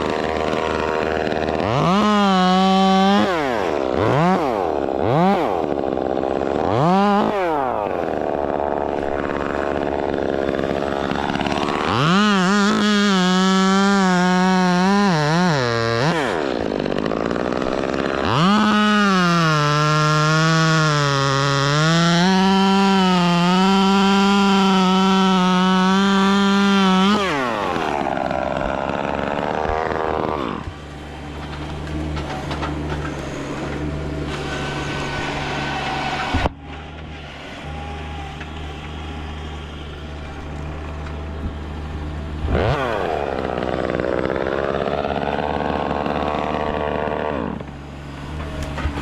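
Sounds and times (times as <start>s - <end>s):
chainsaw revving and idling: 0.0s - 49.0s.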